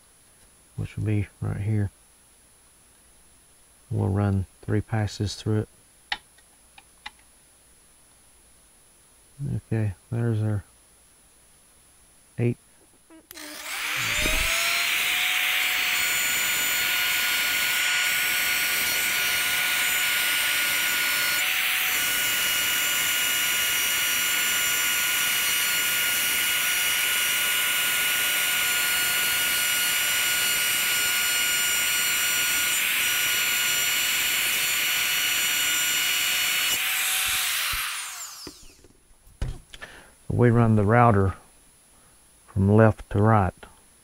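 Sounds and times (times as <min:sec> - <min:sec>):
motor winding down: 0:13.3 - 0:27.0, 0:32.2 - 0:38.9
electric router cutting wood: 0:13.3 - 0:38.9.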